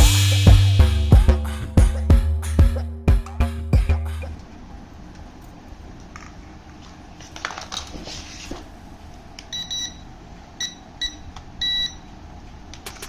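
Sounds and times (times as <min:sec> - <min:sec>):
short electronic beeps: 0:10.6 - 0:12.0.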